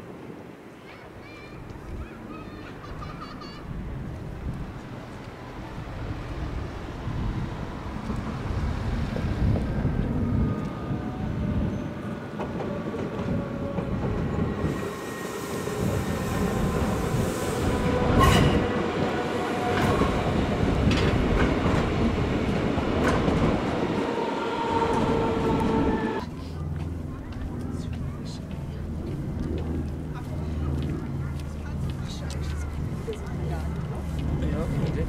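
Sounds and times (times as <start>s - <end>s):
train rumbling with high whine: 1.7s - 35.0s
train wheels clicking over rail joints: 19.7s - 23.7s.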